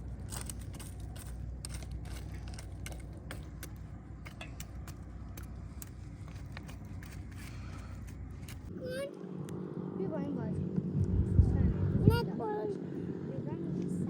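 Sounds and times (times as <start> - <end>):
low rumble: 9.4 - 13.6.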